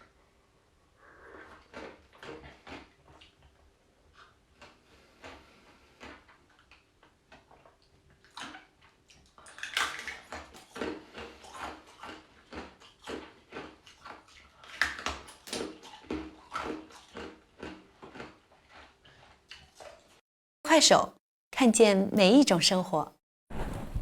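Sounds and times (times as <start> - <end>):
ice crunching and chewing: 1.5 - 20.1.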